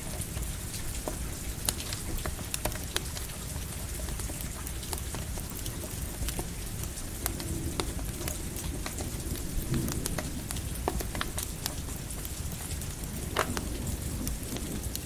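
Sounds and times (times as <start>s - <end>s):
crackling campfire: 0.0s - 15.0s
steady rain: 0.0s - 15.0s
distant thunder rumble: 7.3s - 12.1s, 12.9s - 15.0s.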